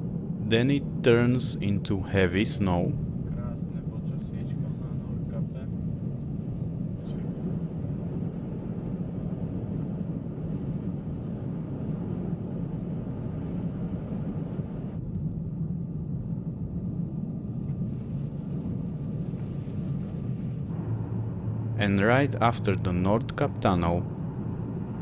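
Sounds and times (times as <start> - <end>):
car engine and tyre rumble: 19.2 - 25.0.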